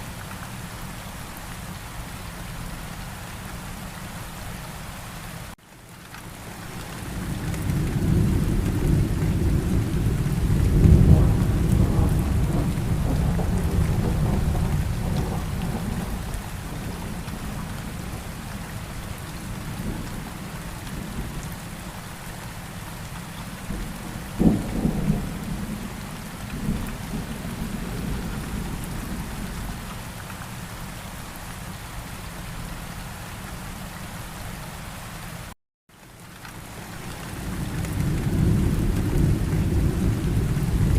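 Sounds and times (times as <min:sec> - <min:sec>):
steady rain falling: 0:00.0 - 0:40.9
rolling thunder: 0:07.2 - 0:18.2, 0:23.6 - 0:29.9, 0:37.5 - 0:40.9
sharp thunderclap: 0:08.1 - 0:17.5.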